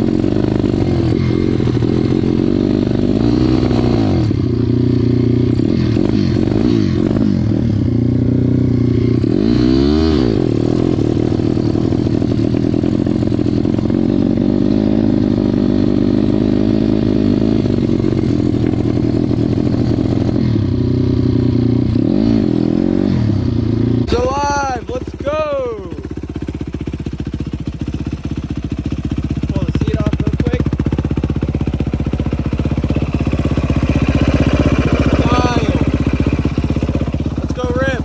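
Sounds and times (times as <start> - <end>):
off-road motorbike engine running: 0.0 - 38.0.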